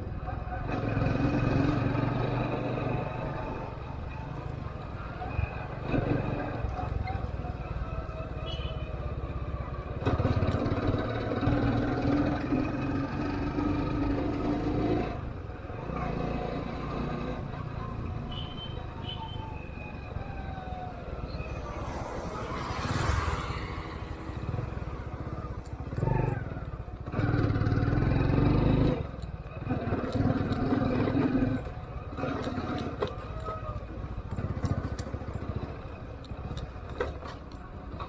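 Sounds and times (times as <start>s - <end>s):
brief rushing noise: 20.6s - 25.9s.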